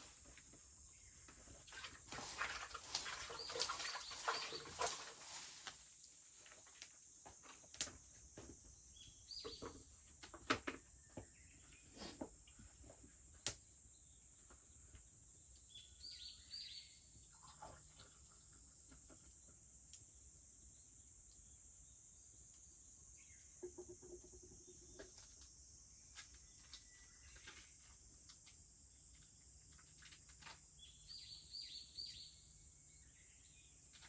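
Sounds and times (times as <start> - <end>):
cicadas droning: 0.0 - 12.5, 17.8 - 34.0
bird calls: 2.2 - 5.5.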